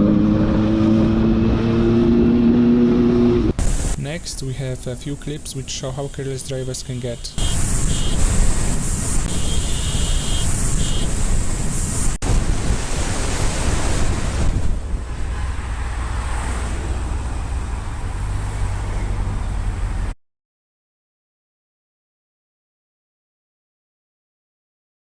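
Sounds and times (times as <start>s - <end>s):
motorcycle engine: 0.0s - 3.6s
road noise: 0.0s - 20.2s
wind rushing over microphone: 7.2s - 19.4s.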